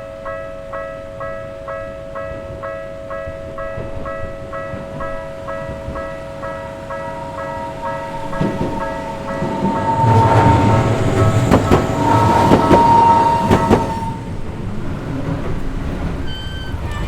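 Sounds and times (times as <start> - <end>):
crossing warning bell ringing: 0.0 - 14.5
train wheels clacking over rail joints: 4.7 - 17.0.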